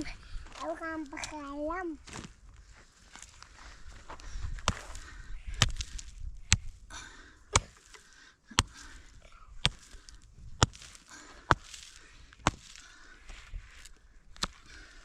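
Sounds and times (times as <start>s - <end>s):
axe chopping wood: 4.6s - 6.8s, 7.5s - 12.9s, 13.8s - 14.7s.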